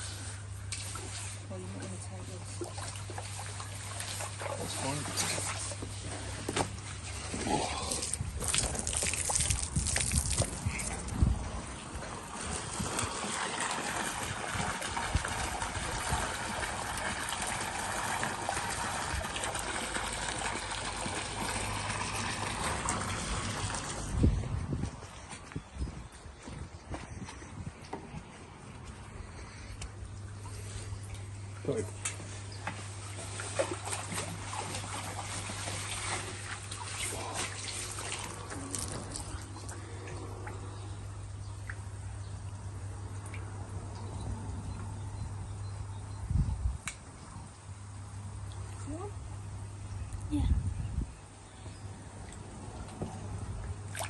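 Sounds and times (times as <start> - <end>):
steady low hum: 0.0 - 54.0
water splashing into standing water: 6.6 - 24.3, 30.4 - 40.8, 52.2 - 54.0.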